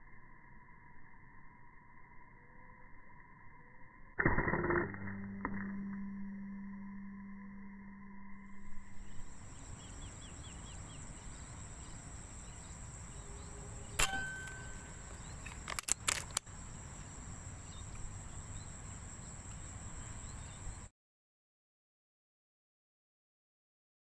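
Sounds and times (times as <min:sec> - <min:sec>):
high insect whine: 0:00.0 - 0:04.7, 0:05.3 - 0:20.9
faint chirps: 0:05.2 - 0:20.9
air rifle shot: 0:14.0 - 0:15.2
cluster of sharp clicks: 0:14.0 - 0:16.5.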